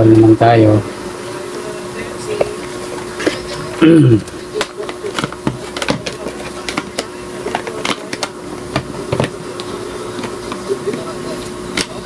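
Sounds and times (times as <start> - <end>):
steady hum: 0.0 - 12.0
multimeter leads clicking and knocking: 4.6 - 11.0.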